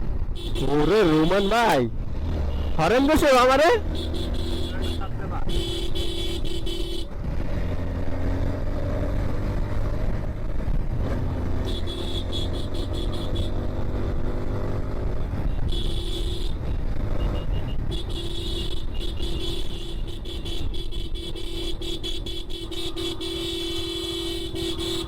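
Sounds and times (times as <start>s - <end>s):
motorcycle engine: 0.0s - 25.0s
vehicle horn blasts: 0.4s - 1.8s, 3.8s - 7.1s, 11.6s - 13.6s, 15.5s - 25.0s.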